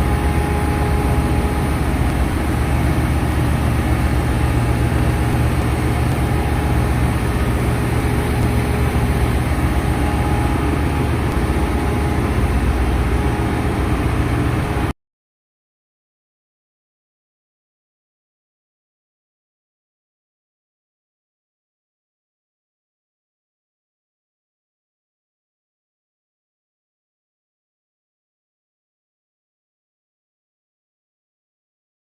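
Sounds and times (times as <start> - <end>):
steady whining tones: 0.0 - 14.9
engine room machinery drone: 0.0 - 15.0.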